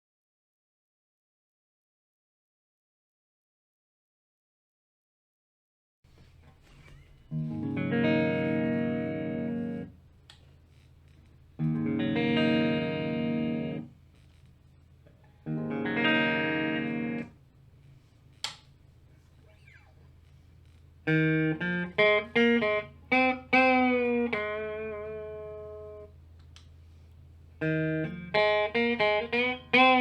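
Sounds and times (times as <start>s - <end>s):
electric guitar chords ringing: 7.3s - 10.1s, 11.6s - 14.0s, 15.3s - 17.4s, 21.0s - 26.2s, 27.5s - 30.0s.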